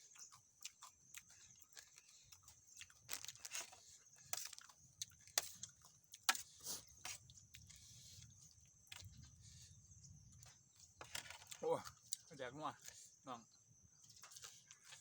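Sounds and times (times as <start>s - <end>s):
wet chewing: 0.0s - 9.4s.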